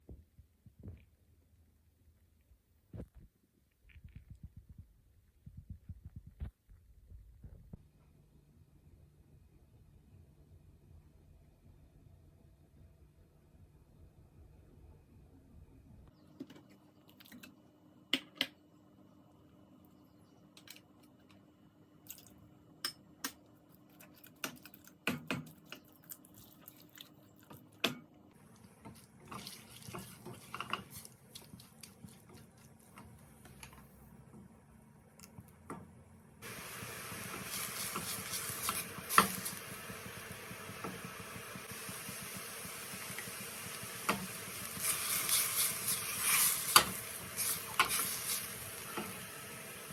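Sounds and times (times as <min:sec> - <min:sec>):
loud steady hiss: 0:36.4 - 0:49.9.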